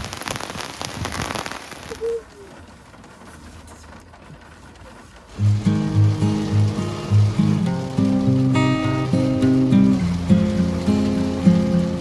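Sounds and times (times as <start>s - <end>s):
heavy rain falling: 0.0s - 12.0s
music with steady bass line: 5.4s - 12.0s.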